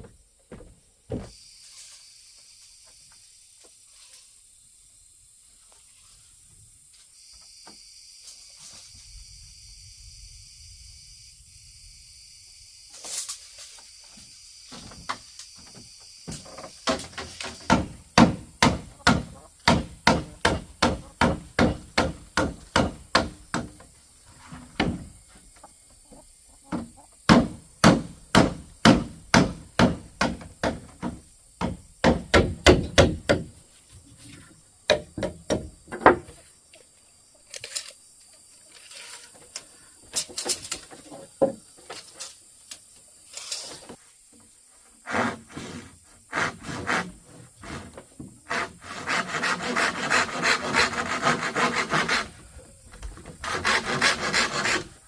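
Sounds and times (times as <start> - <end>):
insects buzzing: 0.0 - 55.0
hand tool striking wood: 16.3 - 23.9, 27.3 - 33.6, 34.9 - 36.3.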